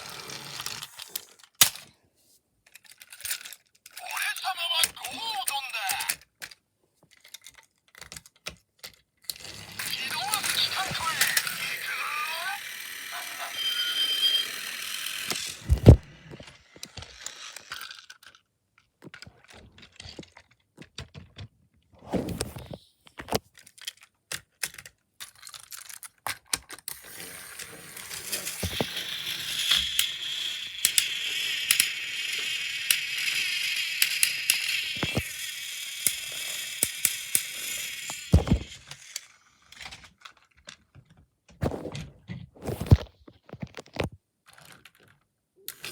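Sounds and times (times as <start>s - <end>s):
toy train motor whirring: 0.0s - 1.9s, 2.9s - 6.2s, 9.3s - 18.5s, 25.4s - 40.5s, 45.7s - 45.9s
plastic toy clicks and knocks: 0.8s - 1.9s, 2.7s - 21.5s, 23.2s - 41.2s, 42.9s - 45.9s.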